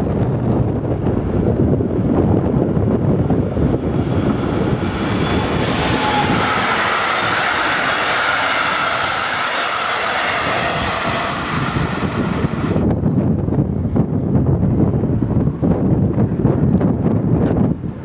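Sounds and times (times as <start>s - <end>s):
train wheels rumbling on rails: 0.0s - 18.0s
high-pitched whine: 2.6s - 12.9s.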